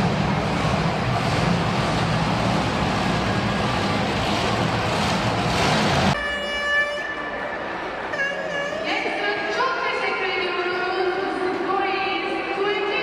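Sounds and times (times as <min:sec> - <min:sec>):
monster truck engine running: 0:00.0 - 0:06.2.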